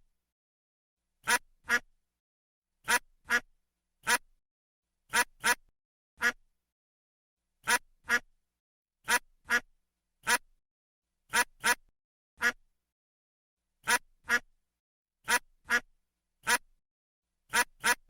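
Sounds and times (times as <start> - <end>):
duck quacking: 1.2 - 1.9, 2.8 - 4.3, 5.1 - 6.4, 7.6 - 8.3, 9.0 - 10.5, 11.3 - 12.6, 13.8 - 14.5, 15.2 - 16.7, 17.5 - 18.0.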